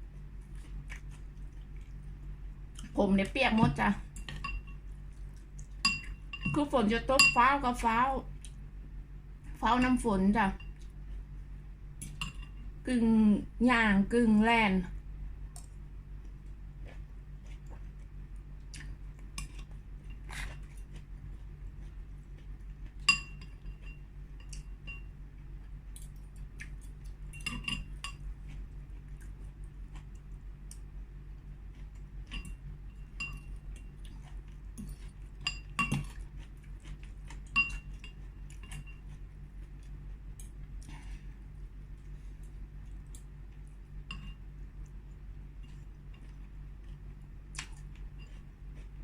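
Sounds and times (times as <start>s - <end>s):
steady low hum: 0.0s - 49.0s
spoon clinking against bowl: 4.2s - 4.8s, 5.8s - 6.6s, 23.1s - 25.1s.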